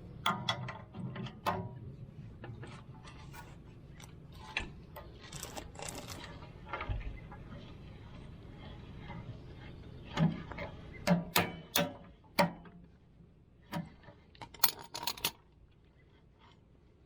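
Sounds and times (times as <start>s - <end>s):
scraping rustle: 2.7s - 11.0s.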